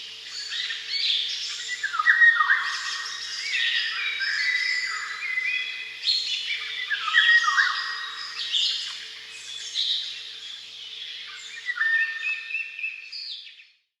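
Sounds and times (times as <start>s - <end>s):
songbirds singing: 0.0s - 13.9s.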